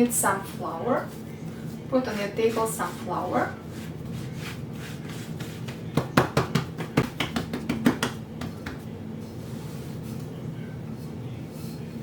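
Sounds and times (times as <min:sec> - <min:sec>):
steady low hum: 0:00.0 - 0:12.0
knocks on kitchen work surface: 0:05.9 - 0:08.8.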